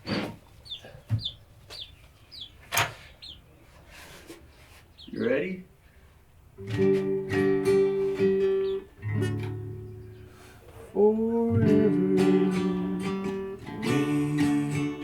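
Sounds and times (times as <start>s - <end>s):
acoustic guitar strumming: 6.6s - 15.0s
man singing slow song: 10.8s - 15.0s.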